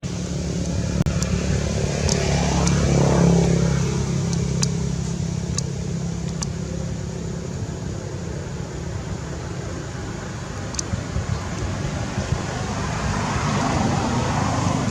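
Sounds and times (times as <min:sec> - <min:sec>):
low motor hum: 0:00.0 - 0:14.9
sharp clicks: 0:00.2 - 0:06.8, 0:10.6 - 0:12.4.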